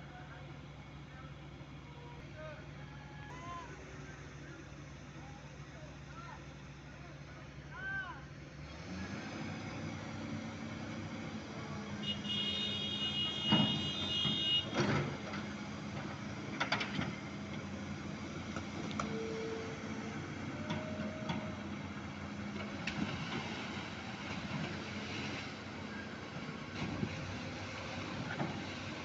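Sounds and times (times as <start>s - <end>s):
machinery humming: 11.7s - 29.0s.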